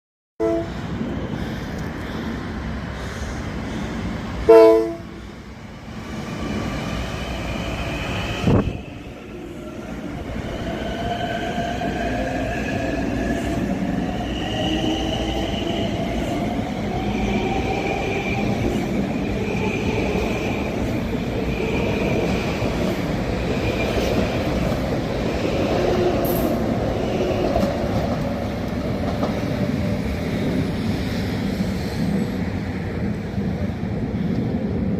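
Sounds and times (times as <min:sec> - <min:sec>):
train horn blast: 0:00.4 - 0:00.8, 0:04.5 - 0:05.2
train running: 0:00.4 - 0:34.9.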